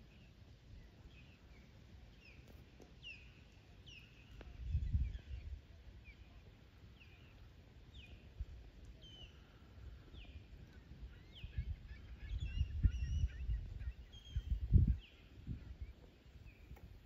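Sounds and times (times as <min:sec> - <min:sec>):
wind buffeting microphone: 0:04.6 - 0:05.6, 0:10.2 - 0:17.0
bird chirps: 0:11.1 - 0:16.8.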